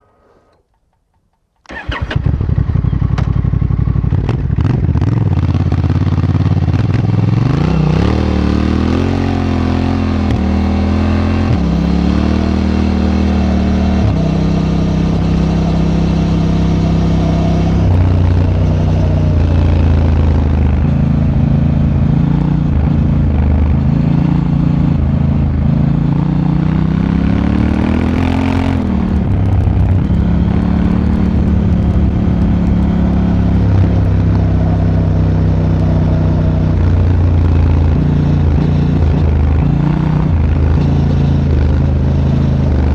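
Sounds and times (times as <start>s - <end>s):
motorcycle engine starting: 1.6s - 8.5s, 24.9s - 42.9s
motorcycle engine accelerating: 1.7s - 42.9s.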